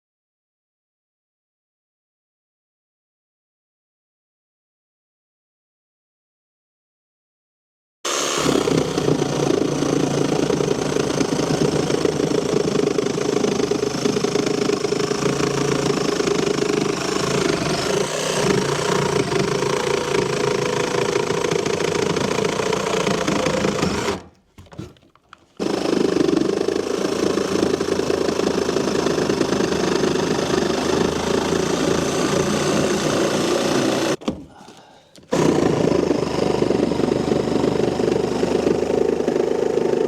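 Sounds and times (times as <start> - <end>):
reciprocating saw cutting wood: 8.1 - 25.0, 25.6 - 34.2, 35.3 - 40.0.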